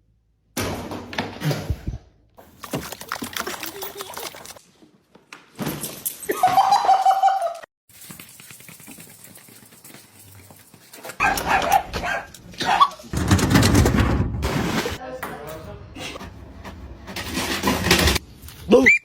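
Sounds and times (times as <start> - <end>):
dog barking: 11.2 - 13.0.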